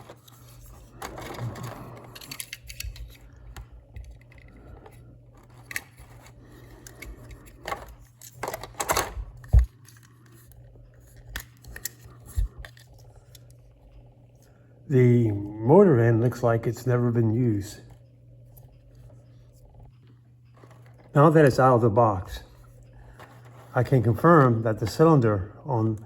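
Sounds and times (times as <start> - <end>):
plastic toy train cars handled: 0.0 - 3.2, 4.0 - 10.5.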